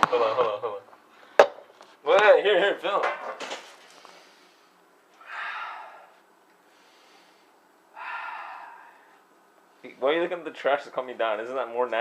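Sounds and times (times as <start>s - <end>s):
person gasping: 5.2s - 6.2s, 6.8s - 9.2s.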